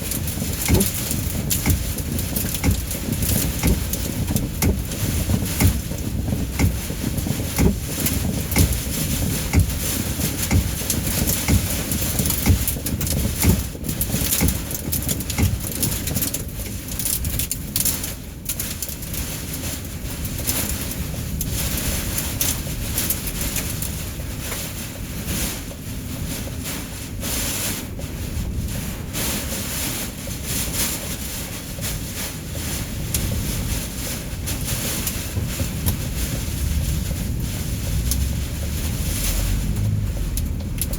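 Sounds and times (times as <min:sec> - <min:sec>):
heavy rain and hail on a car: 0:00.0 - 0:40.9
wind gusting: 0:35.7 - 0:40.9.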